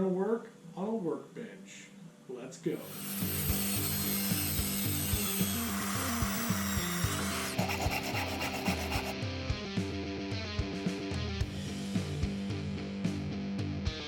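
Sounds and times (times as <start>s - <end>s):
loud rasping hiss: 2.8s - 9.1s.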